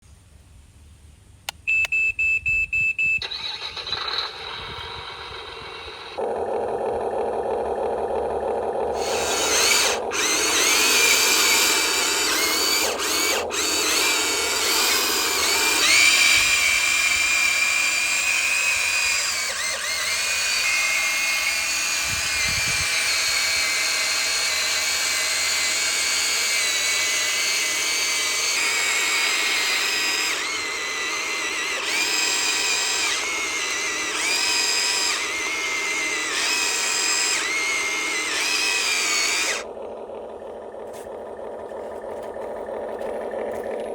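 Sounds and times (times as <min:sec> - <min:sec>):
short electronic beeps: 0:01.7 - 0:03.4
small electric motors whirring: 0:03.2 - 0:43.9.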